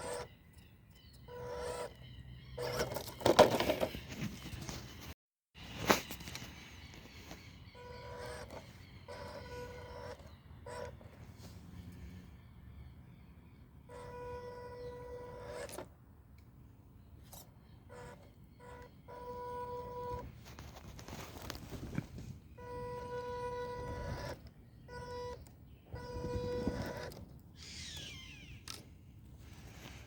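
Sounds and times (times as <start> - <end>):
electric motor whining: 0.0 - 0.4, 1.1 - 3.0, 7.7 - 12.2, 13.8 - 15.9, 17.9 - 20.3, 22.5 - 28.8
tyres and drivetrain crunching: 6.0 - 12.3, 17.2 - 28.8.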